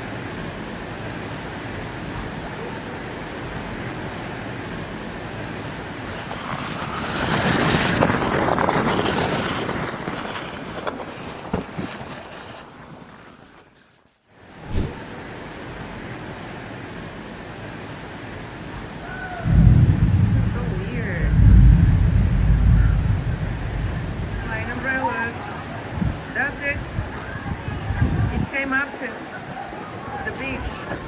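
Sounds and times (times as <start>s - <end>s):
rushing wind: 0.0s - 13.2s, 14.5s - 16.4s, 17.8s - 28.6s
rushing water: 0.0s - 31.0s
short sharp sound: 14.7s - 15.0s.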